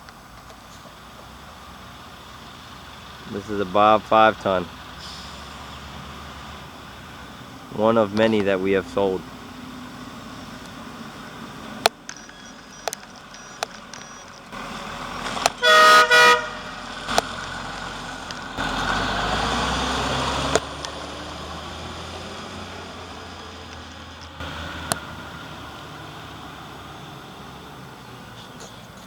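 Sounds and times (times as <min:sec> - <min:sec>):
sharp clicks: 0:09.9 - 0:15.6
truck horn toots: 0:15.5 - 0:17.5.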